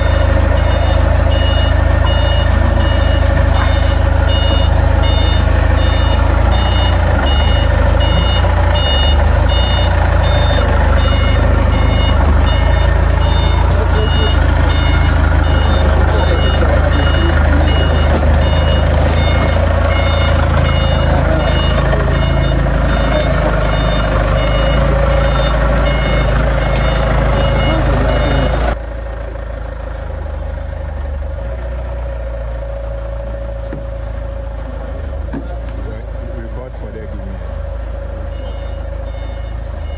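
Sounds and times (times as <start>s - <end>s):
reversing alarm beeping: 0.0s - 28.8s, 38.1s - 39.9s
low engine rumble: 0.0s - 39.9s.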